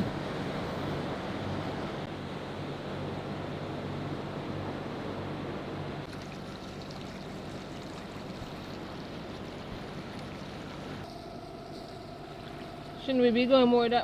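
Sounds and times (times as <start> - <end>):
low engine hum: 0.0 - 14.0
water splashing along boat hull: 6.1 - 13.1.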